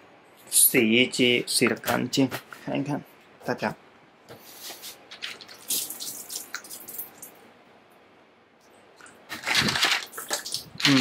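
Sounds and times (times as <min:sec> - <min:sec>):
water dripping: 0:05.4 - 0:07.4
plastic toys clicking and knocking: 0:09.3 - 0:11.0.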